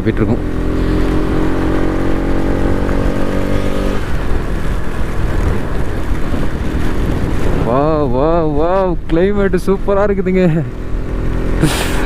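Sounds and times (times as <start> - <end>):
motorcycle engine running: 0.0 - 12.0
wind noise rumble: 0.0 - 12.0.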